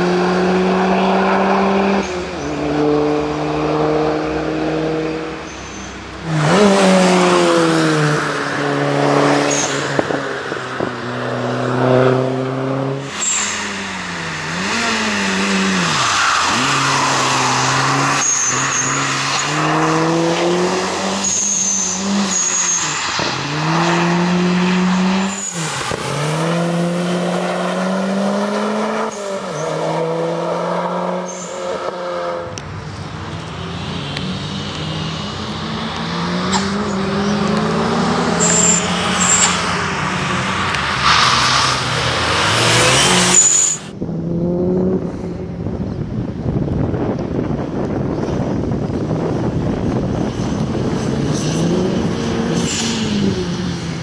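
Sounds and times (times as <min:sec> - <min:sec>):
car engine accelerating hard: 0:06.2 - 0:32.7, 0:34.1 - 0:45.5
brief high tyre squeals: 0:13.0 - 0:17.0, 0:21.2 - 0:23.4, 0:31.2 - 0:31.8, 0:38.3 - 0:39.8, 0:42.9 - 0:43.9.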